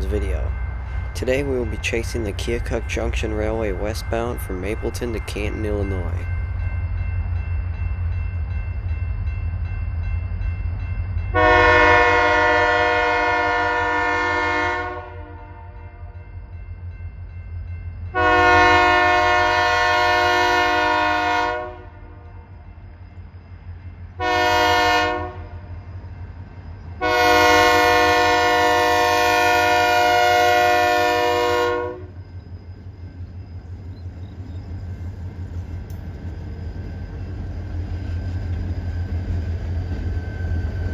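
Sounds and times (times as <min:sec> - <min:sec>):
locomotive air horn blasts: 0:11.3 - 0:15.8, 0:18.1 - 0:22.2, 0:24.2 - 0:25.6, 0:27.0 - 0:32.1.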